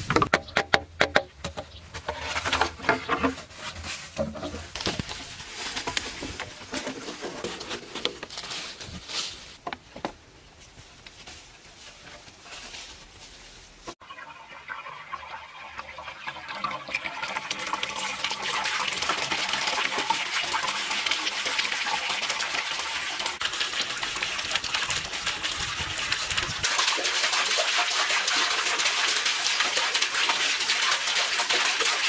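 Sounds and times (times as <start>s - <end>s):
water running and splashing: 14.0s - 32.0s.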